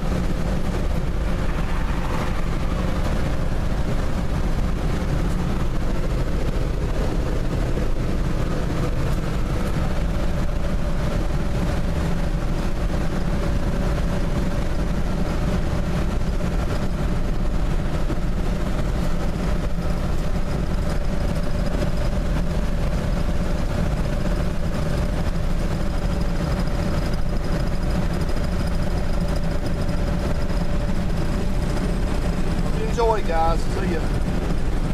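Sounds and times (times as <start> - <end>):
pickup engine rumble: 0.0 - 34.9
road noise: 0.0 - 34.9.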